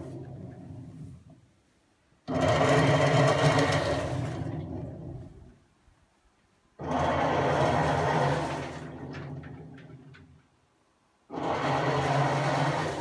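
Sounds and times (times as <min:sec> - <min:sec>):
washing machine churning: 0:02.3 - 0:05.4, 0:06.8 - 0:10.4, 0:11.3 - 0:13.0.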